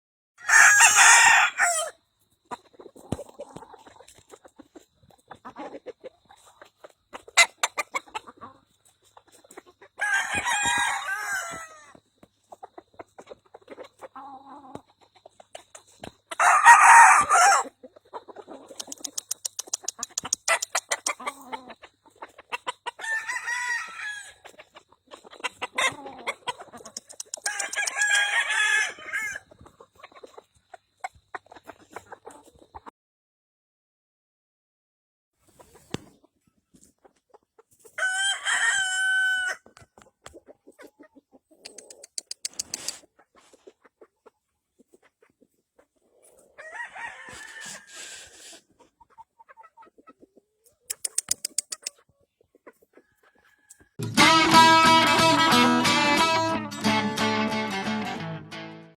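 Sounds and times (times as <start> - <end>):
roosters crowing: 0.4 - 2.0, 10.0 - 12.0, 16.3 - 17.8, 22.9 - 24.4, 25.6 - 29.5, 38.0 - 39.7, 46.6 - 48.5
chicken clucks: 1.6 - 32.9, 35.4 - 54.0.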